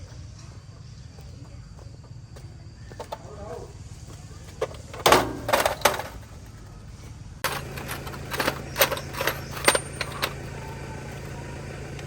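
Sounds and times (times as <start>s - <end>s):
steady low hum: 0.0s - 12.0s
metallic clinks and knocks: 7.4s - 10.4s.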